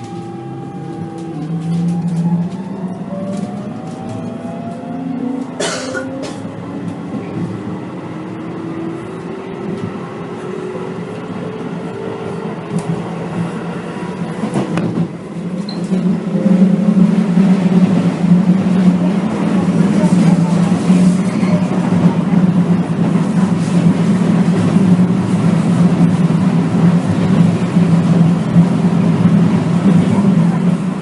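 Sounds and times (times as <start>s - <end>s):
train motor whine: 0.0s - 5.6s
rail running noise: 0.0s - 31.0s.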